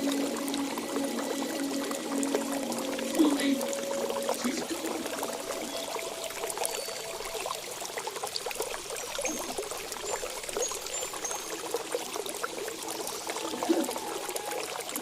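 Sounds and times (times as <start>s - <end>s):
water trickling and babbling: 0.0s - 15.0s.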